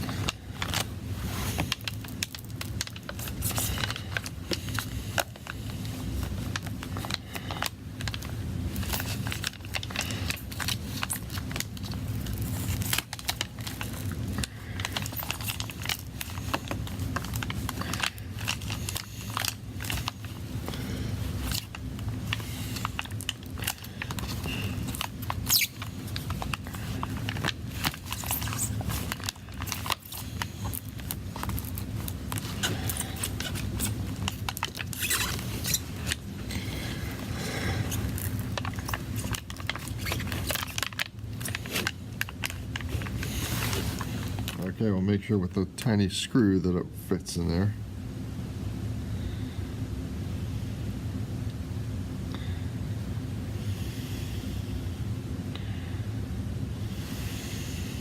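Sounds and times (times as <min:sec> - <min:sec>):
steady low hum: 0:00.0 - 0:58.0
hand tools clicking and scraping: 0:21.4 - 0:31.7.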